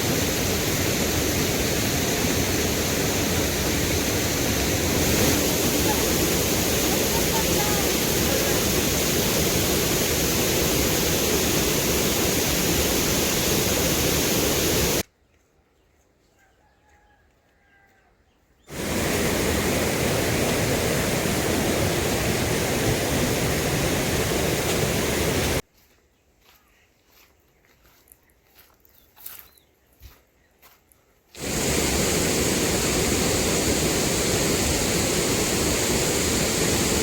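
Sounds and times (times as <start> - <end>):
rushing water: 0.0 - 15.0, 18.7 - 25.6, 31.4 - 37.0.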